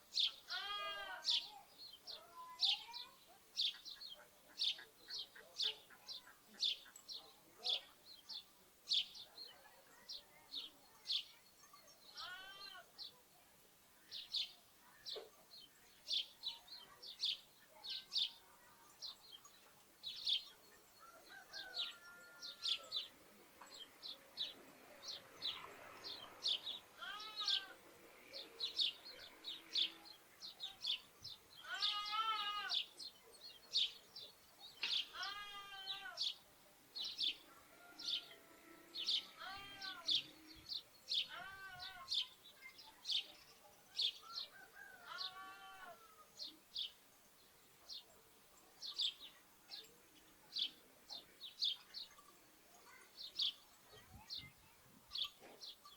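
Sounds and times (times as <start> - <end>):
sparrows chirping: 0.0 - 55.9
lambs bleating: 0.5 - 1.2, 27.0 - 27.7, 31.6 - 32.8, 35.2 - 36.2.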